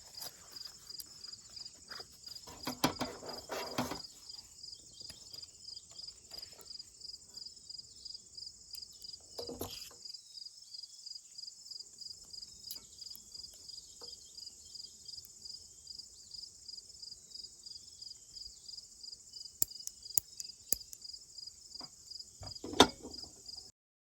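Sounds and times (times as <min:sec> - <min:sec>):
insect trilling: 0:04.0 - 0:10.5
sharp clicks: 0:19.6 - 0:21.0.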